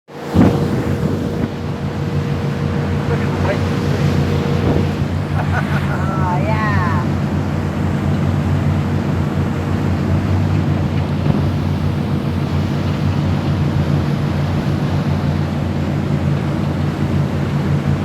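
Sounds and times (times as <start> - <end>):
wind rushing: 0.1 - 8.0
boat engine humming: 0.1 - 18.0.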